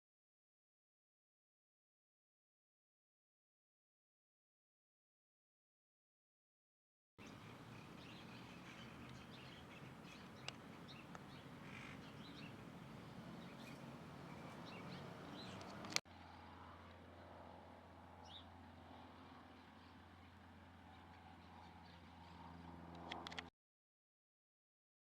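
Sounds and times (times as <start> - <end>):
birds chirping and calling: 7.2 - 16.0.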